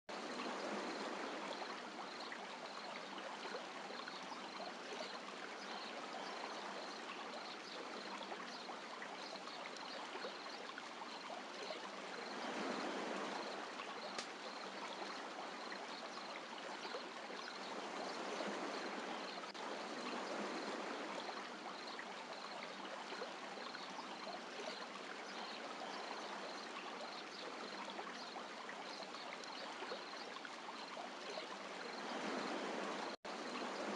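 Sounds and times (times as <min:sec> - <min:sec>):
sea waves washing on beach: 0:11.6 - 0:24.5, 0:31.2 - 0:33.9.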